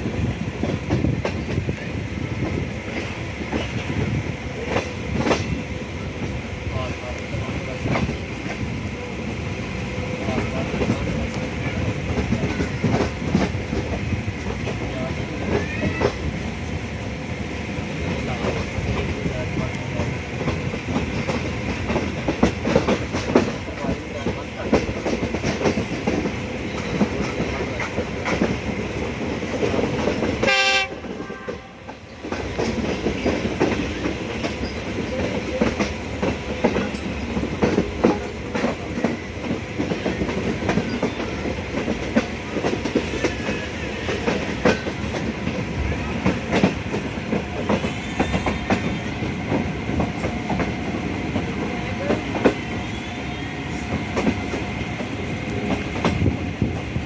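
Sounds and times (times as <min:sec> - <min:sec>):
train wheels clattering on rails: 0:00.0 - 0:57.0
train horn blast: 0:30.4 - 0:31.9.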